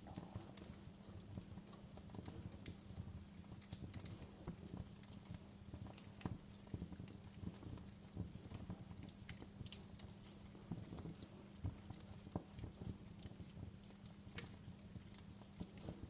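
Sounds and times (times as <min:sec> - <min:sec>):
faint low hum: 0:00.0 - 0:16.0
wood fire crackling and popping: 0:00.0 - 0:16.0.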